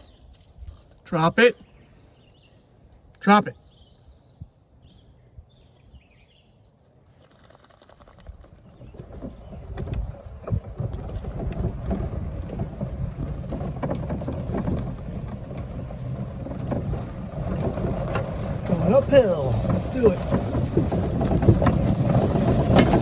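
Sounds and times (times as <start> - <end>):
wind noise on microphone: 8.2 - 23.0
vehicle clatter: 8.8 - 23.0.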